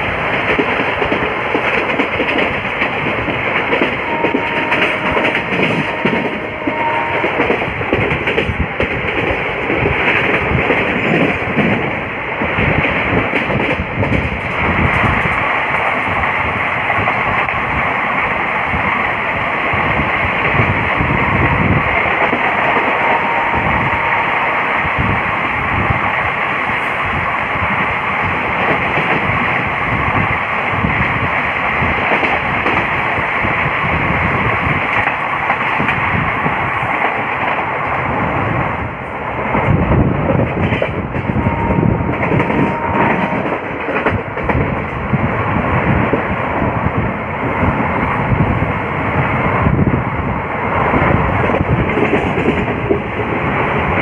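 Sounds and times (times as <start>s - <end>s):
train coach rushing and rumbling: 0.0s - 54.0s
wind on microphone: 0.0s - 54.0s.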